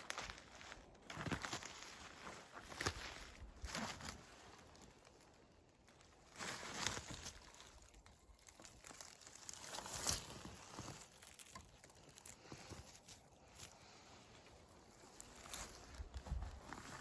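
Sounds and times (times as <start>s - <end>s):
footsteps crunching through leaf litter: 6.0s - 14.0s, 14.7s - 17.0s.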